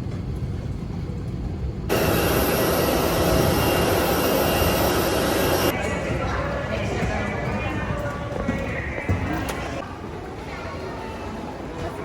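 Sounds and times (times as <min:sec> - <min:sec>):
airliner cabin rumble: 0:00.0 - 0:09.8
jet engine rush: 0:01.9 - 0:05.8.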